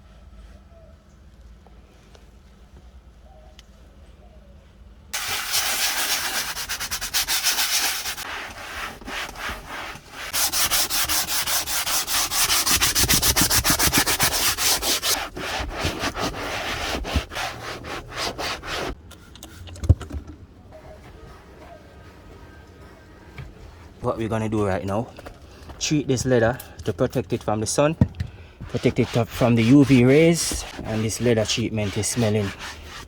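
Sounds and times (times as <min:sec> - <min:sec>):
stiff brush scrubbing: 0:05.2 - 0:19.0, 0:28.6 - 0:33.0.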